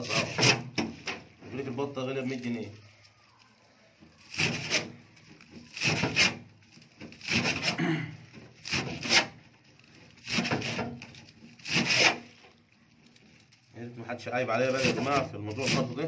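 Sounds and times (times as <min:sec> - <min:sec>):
blade cutting through stalks: 0:00.0 - 0:01.2, 0:04.2 - 0:07.8, 0:08.5 - 0:12.4, 0:14.6 - 0:16.0.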